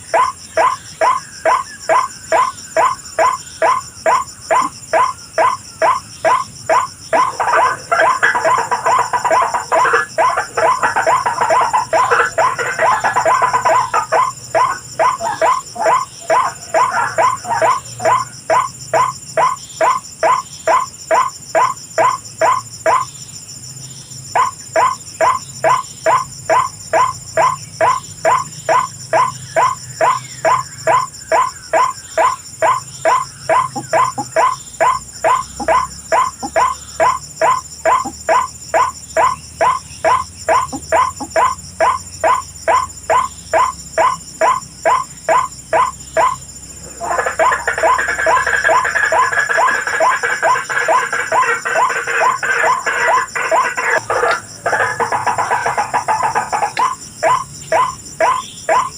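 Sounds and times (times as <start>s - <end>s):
waterhen calling: 7.2s - 18.3s.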